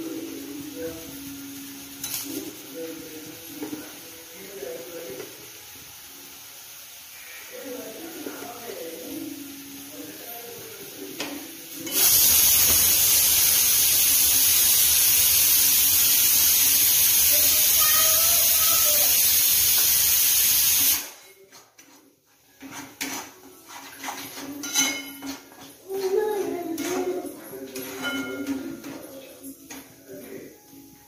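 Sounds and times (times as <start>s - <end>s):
paste sizzling in oil: 0.0s - 21.2s
scraping and knocking in pan: 21.4s - 27.2s.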